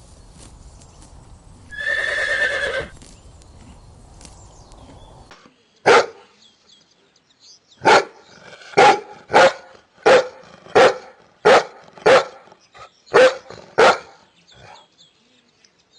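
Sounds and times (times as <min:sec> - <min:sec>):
dog barking: 0:05.9 - 0:06.2, 0:07.8 - 0:08.2, 0:08.8 - 0:12.5, 0:13.1 - 0:14.2.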